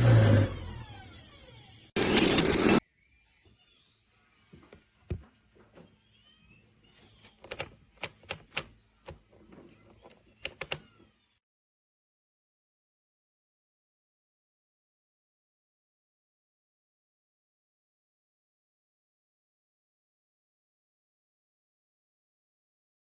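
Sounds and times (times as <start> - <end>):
juicer motor spinning down: 0.0 - 2.8.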